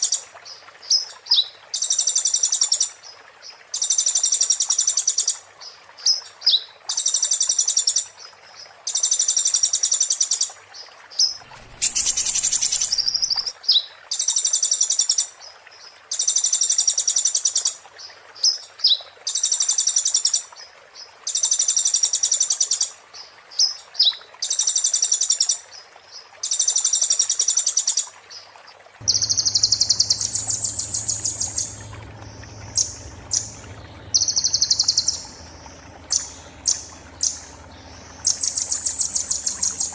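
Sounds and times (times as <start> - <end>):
sunbird singing rapid trills: 11.4 - 13.5, 29.0 - 39.9
low hum: 29.0 - 39.9.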